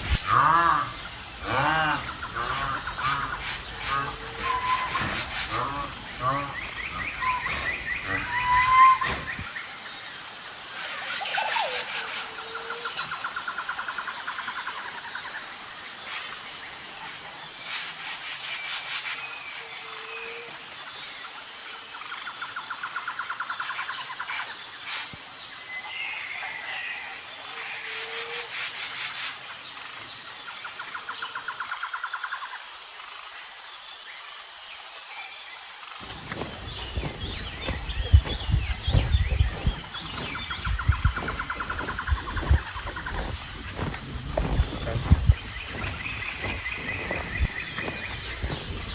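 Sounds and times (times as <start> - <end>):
insects buzzing: 0.0 - 48.9
short bird calls: 0.1 - 9.6
trilled call: 0.2 - 9.5.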